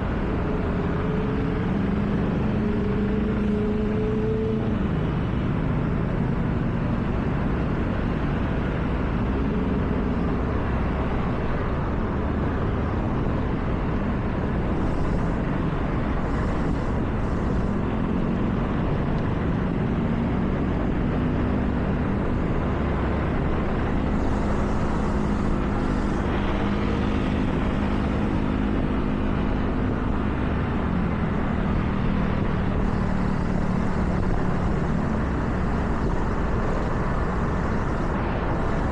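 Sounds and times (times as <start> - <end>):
car engine hum: 0.0 - 38.9
tyre noise on wet road: 32.3 - 38.9.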